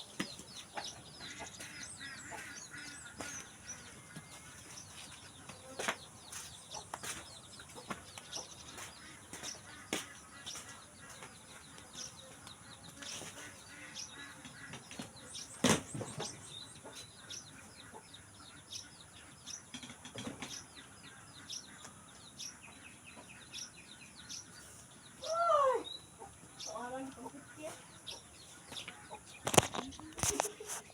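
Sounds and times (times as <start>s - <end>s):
chickens clucking: 0.0s - 25.2s, 26.0s - 30.9s
small birds chirping: 0.0s - 30.9s.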